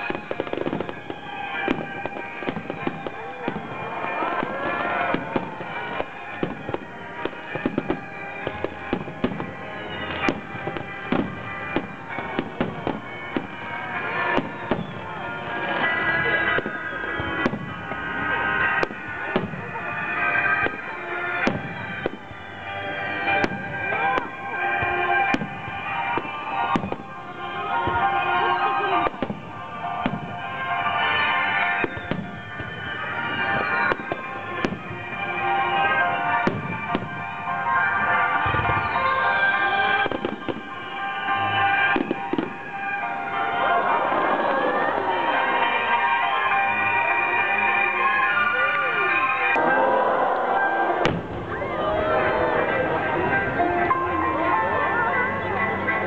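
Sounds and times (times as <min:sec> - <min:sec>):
fireworks bursting: 0:00.0 - 0:54.5
music playing: 0:00.0 - 0:56.0.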